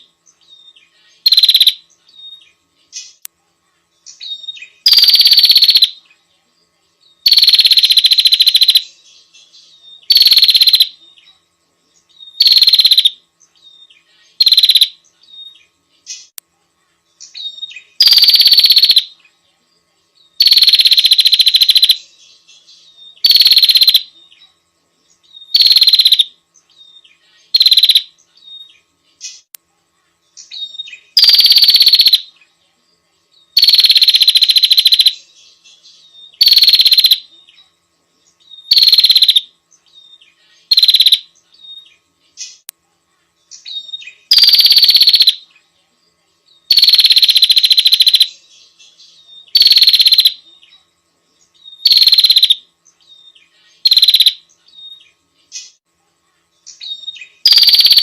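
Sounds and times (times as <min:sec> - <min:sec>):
songbird calling shrilly: 0:00.0 - 0:03.2, 0:04.1 - 0:06.0, 0:09.6 - 0:11.0, 0:12.2 - 0:16.3, 0:17.2 - 0:19.2, 0:20.4 - 0:22.0, 0:22.8 - 0:24.1, 0:25.3 - 0:29.5, 0:30.4 - 0:32.3, 0:36.0 - 0:37.3, 0:38.5 - 0:42.7, 0:43.6 - 0:45.4, 0:46.7 - 0:50.4, 0:51.6 - 0:55.8, 0:56.7 - 0:58.0.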